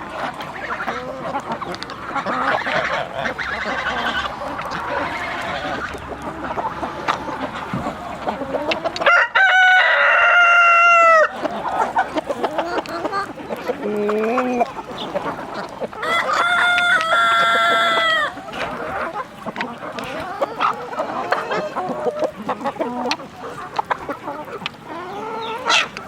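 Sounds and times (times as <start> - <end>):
hens clucking: 0.0 - 26.0
rooster crowing: 9.0 - 11.4, 16.0 - 18.4.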